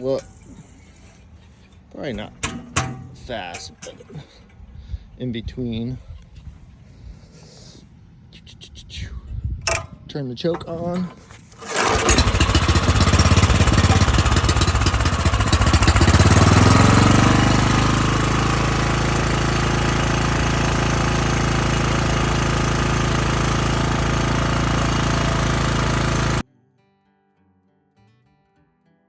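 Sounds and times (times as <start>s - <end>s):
small engine starting and running: 0.0s - 4.7s, 9.6s - 26.4s.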